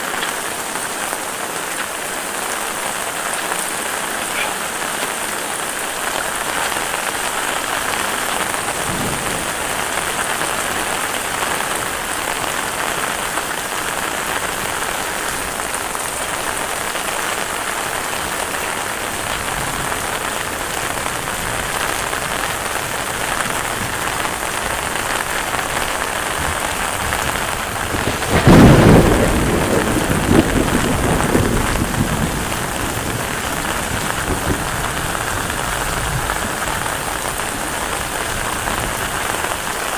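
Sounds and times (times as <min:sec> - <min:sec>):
heavy rain falling: 0:00.0 - 0:39.9
thunderclap rumbling: 0:03.8 - 0:13.0, 0:18.1 - 0:39.7.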